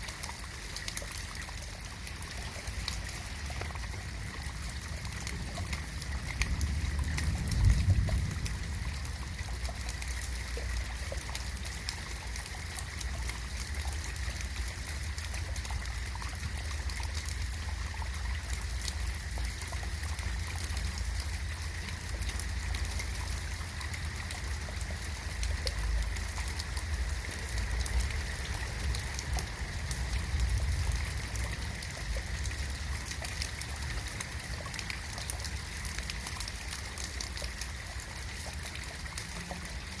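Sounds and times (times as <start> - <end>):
steady rain falling: 0.0 - 40.0
low rumble: 4.1 - 10.7.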